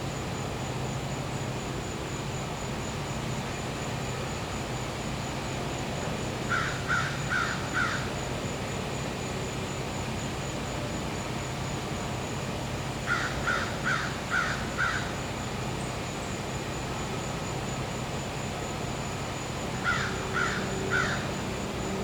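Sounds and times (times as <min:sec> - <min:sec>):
crow cawing: 0:06.5 - 0:08.1, 0:13.0 - 0:15.2, 0:19.8 - 0:21.4
high-pitched insect drone: 0:13.0 - 0:22.0.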